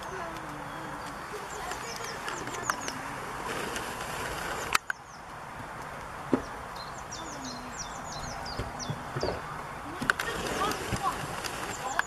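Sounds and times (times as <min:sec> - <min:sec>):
small bird chirping: 0:00.0 - 0:03.2, 0:06.4 - 0:09.6
steady background noise: 0:00.0 - 0:12.0.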